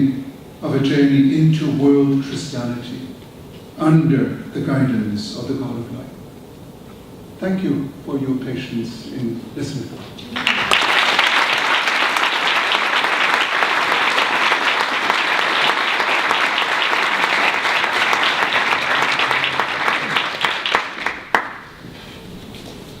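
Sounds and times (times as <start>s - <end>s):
audience applauding: 10.4s - 21.8s.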